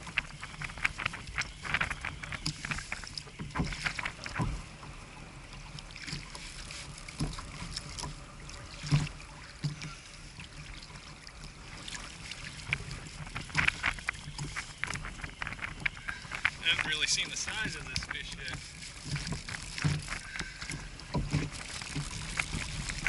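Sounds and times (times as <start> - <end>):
knocks and taps on hull: 0.0 - 4.9, 7.1 - 8.2, 8.8 - 10.0, 12.3 - 23.0
water lapping against kayak hull: 0.0 - 23.0.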